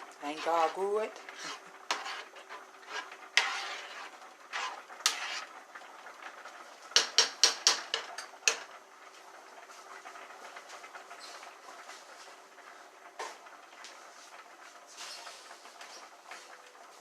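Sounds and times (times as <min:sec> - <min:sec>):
utensil clinking against cookware: 0:07.0 - 0:08.7.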